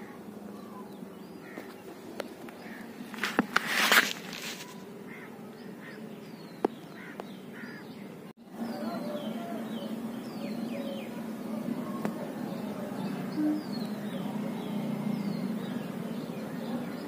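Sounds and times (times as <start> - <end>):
birds chirping: 0.0 - 17.0
loud rustling: 1.5 - 5.1.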